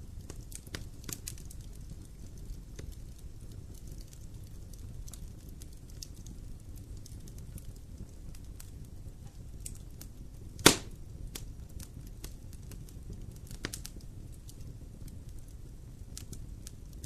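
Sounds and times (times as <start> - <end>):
campfire crackling: 0.0 - 17.0
loud sharp fire pop: 10.6 - 11.0.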